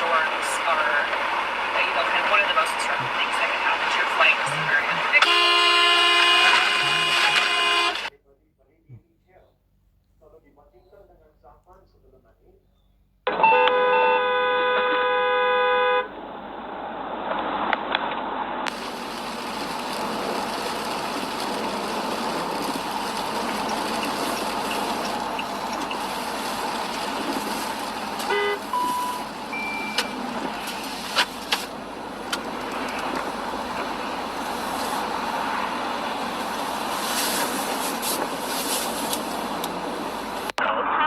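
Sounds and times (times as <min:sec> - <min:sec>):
vehicle road and engine noise: 0:00.0 - 0:08.1, 0:16.8 - 0:40.6
car horn honk: 0:01.9 - 0:08.1, 0:13.3 - 0:16.1, 0:24.7 - 0:31.3
electronic beeps: 0:28.3 - 0:30.3.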